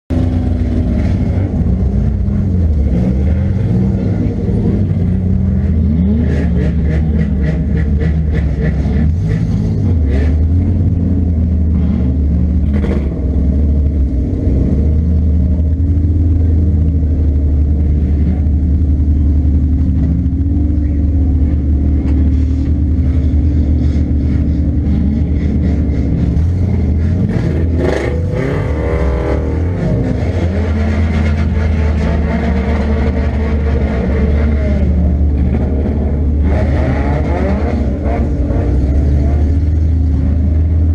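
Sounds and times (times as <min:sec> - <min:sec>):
car engine revving: 0:00.1 - 0:40.9.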